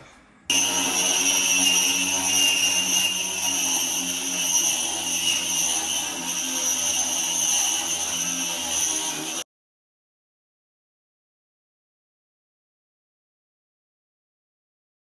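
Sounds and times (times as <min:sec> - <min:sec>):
electric motor whining: 0:00.5 - 0:09.4.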